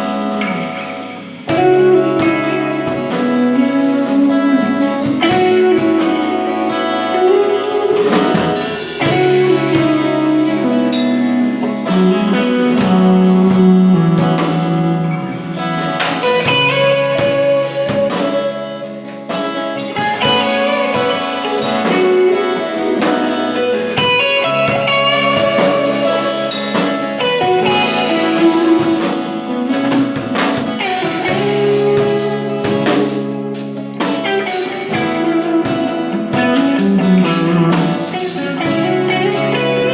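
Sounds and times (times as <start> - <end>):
electric guitar blues passage: 0.0 - 39.9.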